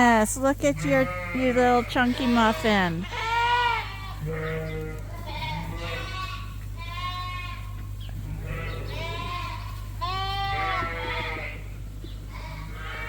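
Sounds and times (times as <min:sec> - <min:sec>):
sheep bleating: 0:00.6 - 0:11.7, 0:12.3 - 0:13.0.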